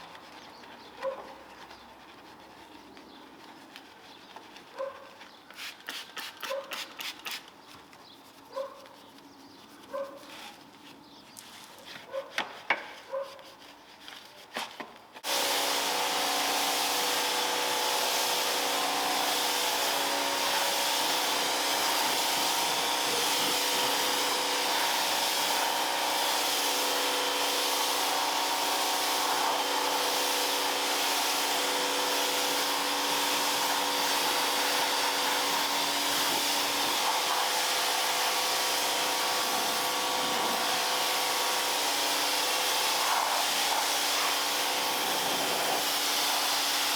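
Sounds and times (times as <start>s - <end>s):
water spray hissing: 5.5s - 7.5s, 15.2s - 46.9s
pressure washer motor whine: 15.2s - 46.9s.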